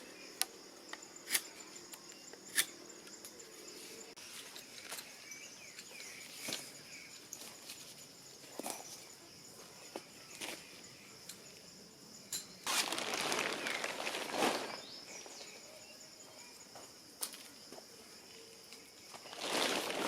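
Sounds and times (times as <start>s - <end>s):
insect chorus: 0.0s - 20.0s
rustling noise: 12.6s - 15.6s, 19.1s - 20.0s.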